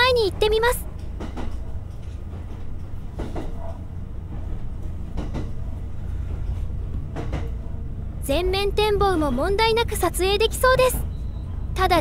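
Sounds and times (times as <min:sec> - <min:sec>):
train wheels clacking: 0:00.0 - 0:08.0
electric train rumbling: 0:00.0 - 0:12.0.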